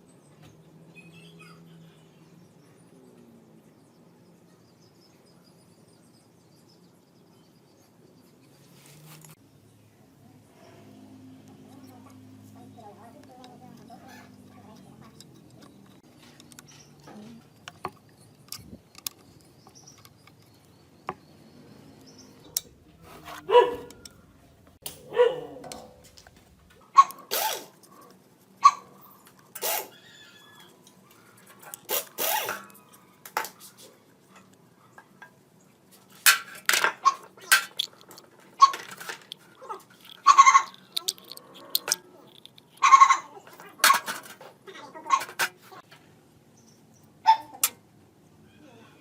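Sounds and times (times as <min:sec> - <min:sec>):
metal engine parts clicking: 0:13.1 - 0:27.7, 0:36.2 - 0:44.4.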